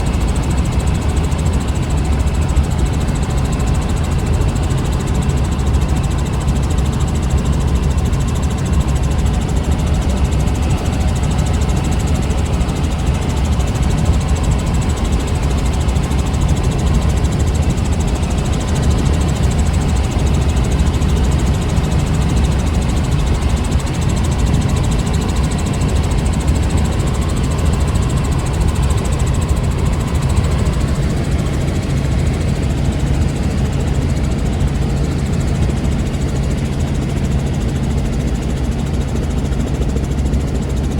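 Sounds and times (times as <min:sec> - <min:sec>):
helicopter engine and rotor: 0:00.0 - 0:40.9.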